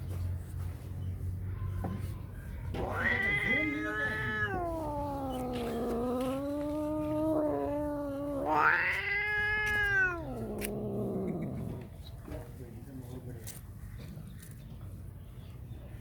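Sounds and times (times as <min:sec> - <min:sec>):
angry cats caterwauling: 0:02.7 - 0:11.9.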